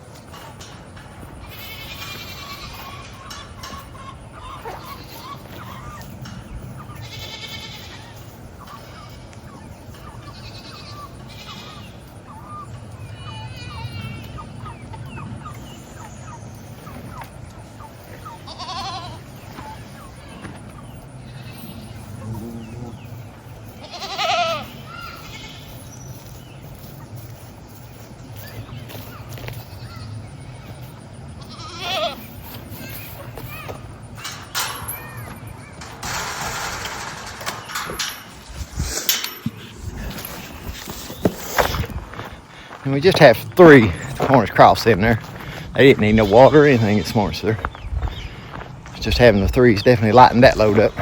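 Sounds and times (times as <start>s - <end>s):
goats bleating: 1.3s - 6.1s, 6.8s - 12.2s, 12.8s - 14.5s, 18.1s - 20.6s, 21.2s - 26.5s, 31.3s - 38.2s.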